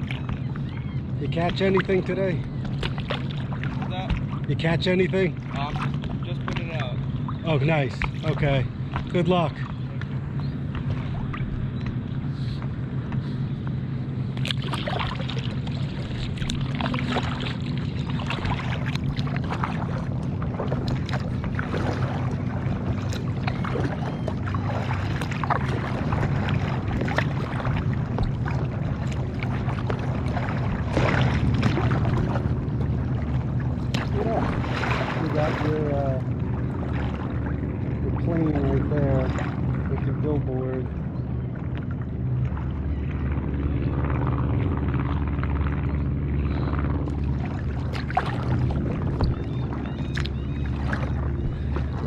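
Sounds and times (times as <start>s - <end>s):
paddle strokes splashing: 0.0s - 4.5s, 14.2s - 40.2s, 41.6s - 52.0s
low motor drone: 0.0s - 52.0s.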